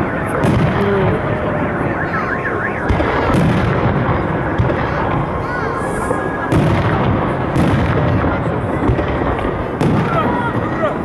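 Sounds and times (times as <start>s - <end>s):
warbling car alarm: 0.0s - 7.5s
fireworks booming: 0.0s - 11.0s.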